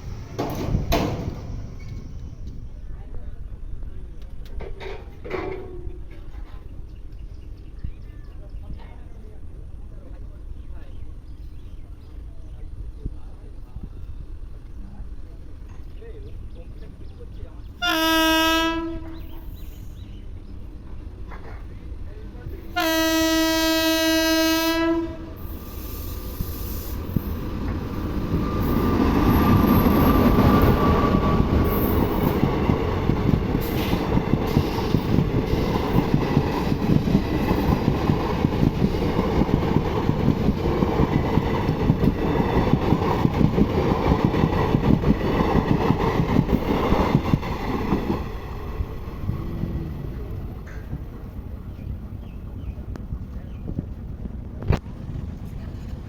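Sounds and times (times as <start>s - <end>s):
wheels clattering over rails: 0.0s - 2.6s
train rumbling past: 0.0s - 56.0s
train horn blast: 17.8s - 19.4s, 22.7s - 27.0s.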